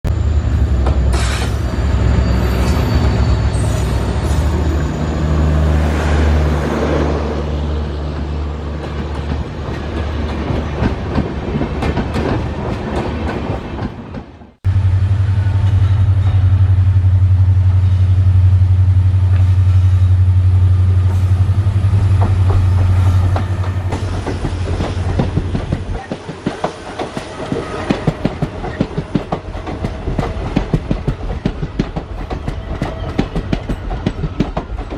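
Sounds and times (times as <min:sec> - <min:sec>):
locomotive engine drone: 0:14.6 - 0:25.1
wheels clacking over rail joints: 0:22.1 - 0:34.9.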